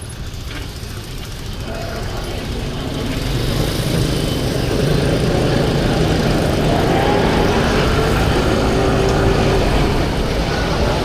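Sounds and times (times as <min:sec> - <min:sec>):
scooter engine: 0:00.0 - 0:11.0
traffic noise: 0:00.0 - 0:11.0
wind on microphone: 0:04.5 - 0:11.0.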